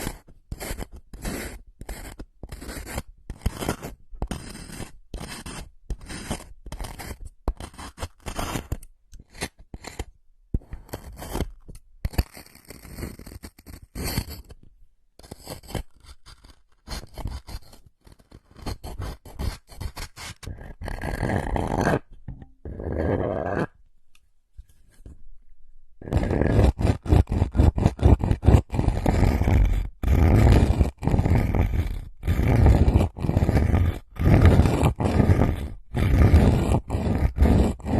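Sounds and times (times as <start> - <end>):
scraping and scratching strokes: 0.0 - 14.6, 15.2 - 23.8, 26.0 - 37.9.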